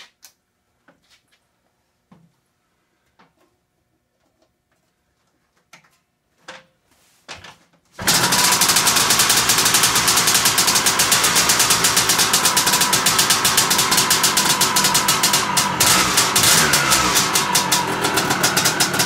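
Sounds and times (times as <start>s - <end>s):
motorcycle engine running: 8.0s - 19.0s.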